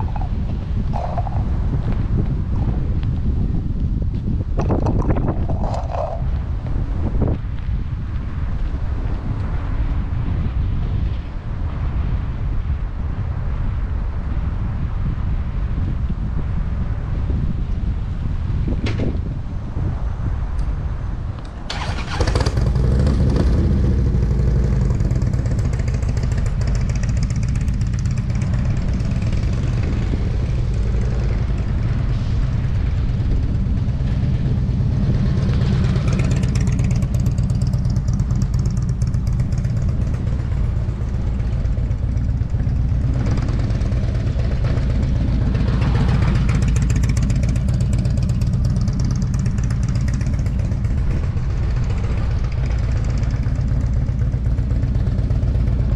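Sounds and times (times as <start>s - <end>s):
rushing noise: 0.0s - 3.6s, 19.4s - 54.4s
motorcycle engine running: 0.0s - 7.3s, 21.7s - 55.9s.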